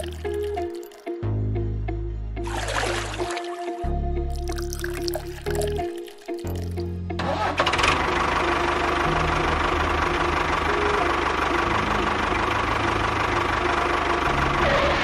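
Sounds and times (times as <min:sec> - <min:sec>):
background music with bass line: 0:00.0 - 0:07.5.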